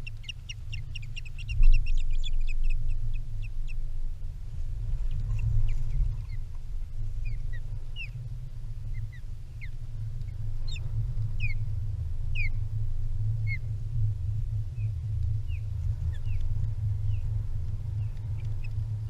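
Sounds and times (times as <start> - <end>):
osprey whistled calls: 0.0 - 3.8, 7.2 - 8.2, 10.6 - 11.6, 12.3 - 12.6, 13.4 - 13.6
low rumble: 0.0 - 19.0.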